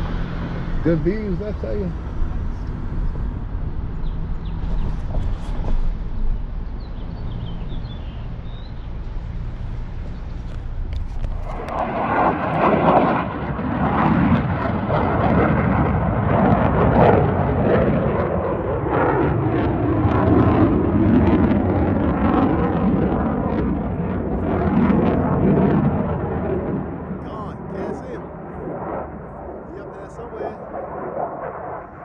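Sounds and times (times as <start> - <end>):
aircraft engine rumble: 0.0 - 32.0.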